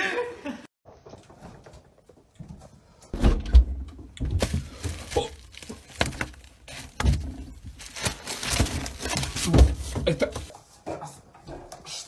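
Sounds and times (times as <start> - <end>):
knocks and thumps: 3.2 - 5.1.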